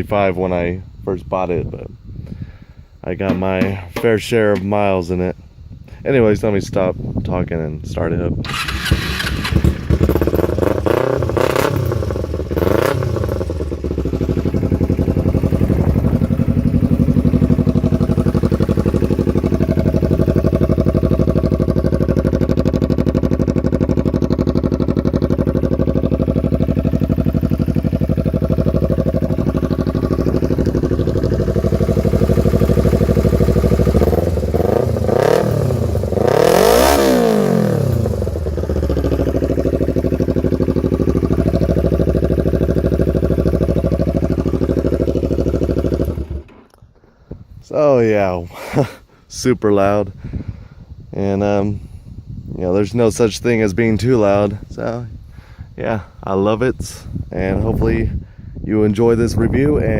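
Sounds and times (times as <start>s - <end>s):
motorcycle engine revving and idling: 3.2s - 4.7s, 8.3s - 47.0s, 52.6s - 58.1s.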